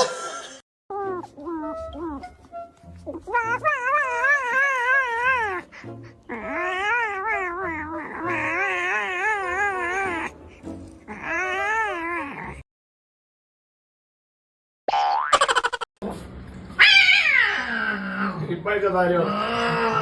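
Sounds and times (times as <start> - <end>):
cat yowling: 3.1 - 10.3, 11.1 - 12.6, 16.8 - 18.4, 19.2 - 20.0.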